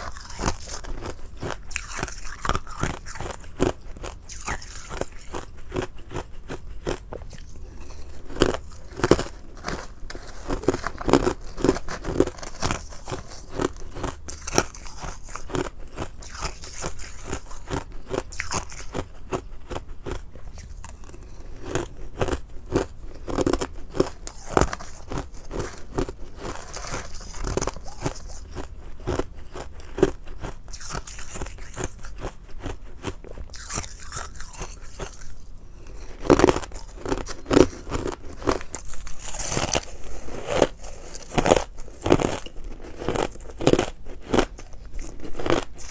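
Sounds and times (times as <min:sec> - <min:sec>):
ice crunching being chewed: 0:00.0 - 0:45.9.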